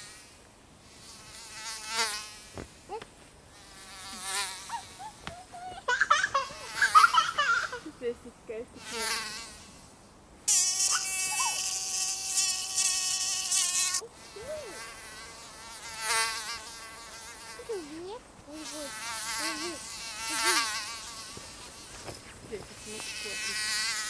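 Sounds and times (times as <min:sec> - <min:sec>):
mosquito whining in flight: 0:04.1 - 0:05.8.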